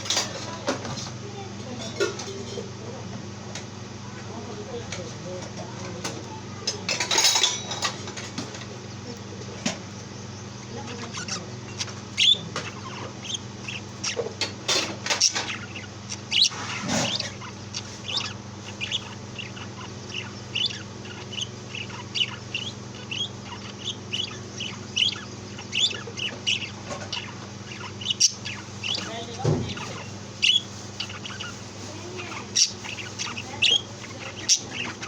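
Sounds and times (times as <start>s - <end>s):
loud bird calls: 0.0s - 1.1s, 3.8s - 35.0s
birds chirping: 0.0s - 35.0s.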